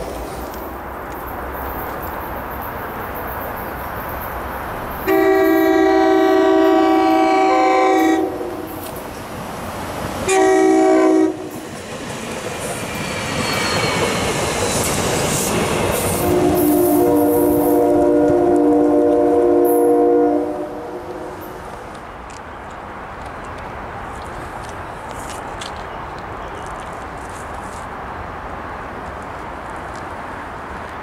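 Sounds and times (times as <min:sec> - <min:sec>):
train rumble and wheel noise: 0:00.0 - 0:31.0
train horn: 0:05.0 - 0:08.8, 0:10.2 - 0:11.6, 0:16.1 - 0:21.5.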